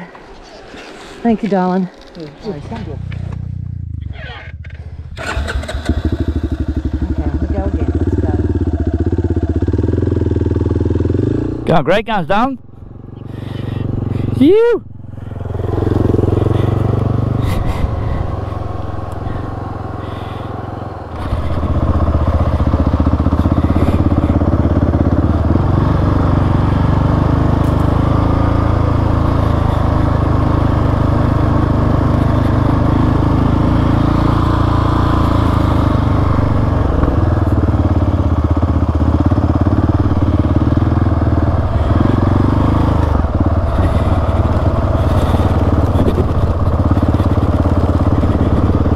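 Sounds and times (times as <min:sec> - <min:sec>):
motorcycle engine: 0:00.0 - 0:48.9.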